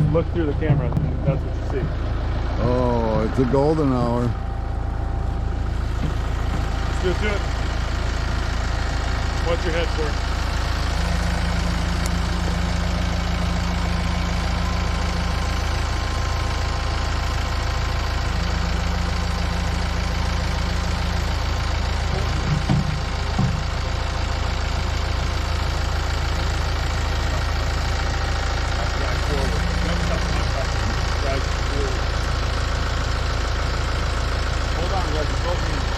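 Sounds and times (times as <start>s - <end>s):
short clunks: 0.0s - 2.2s, 5.8s - 7.9s, 22.1s - 23.9s
tractor engine idling: 0.0s - 35.9s.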